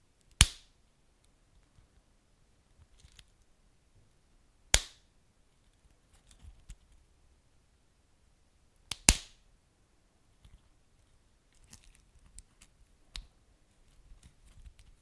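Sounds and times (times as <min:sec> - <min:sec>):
sharp pops from burning logs: 0:04.7 - 0:05.0.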